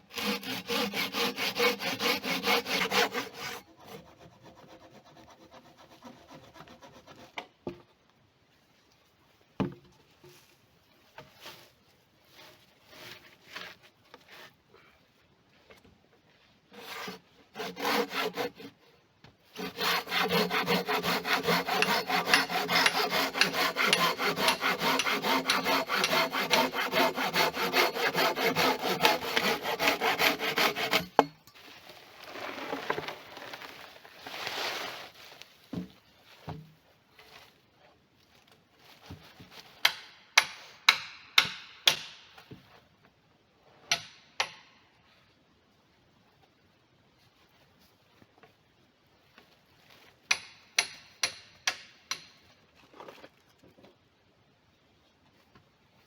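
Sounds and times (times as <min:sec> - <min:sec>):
hand saw cutting wood: 0:00.0 - 0:07.4, 0:12.3 - 0:14.6, 0:16.7 - 0:18.9, 0:19.5 - 0:31.4
quiet scraping: 0:09.9 - 0:14.9, 0:31.5 - 0:36.5.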